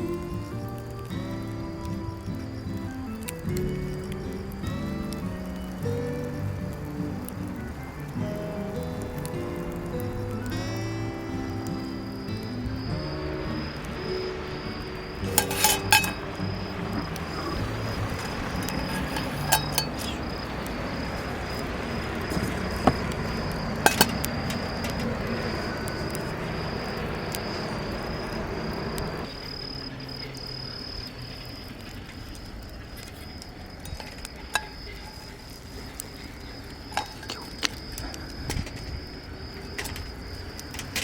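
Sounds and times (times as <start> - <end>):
insect trilling: 0.0 - 41.0
cookware clinking: 15.2 - 16.4, 18.6 - 20.2, 23.8 - 24.4.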